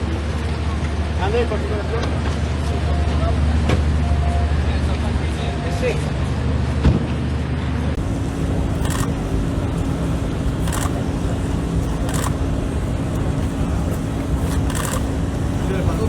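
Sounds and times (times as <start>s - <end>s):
outdoor background noise: 0.0s - 16.0s
camera shutter clicks: 8.8s - 9.1s, 10.6s - 10.9s, 12.1s - 12.4s, 14.5s - 15.1s.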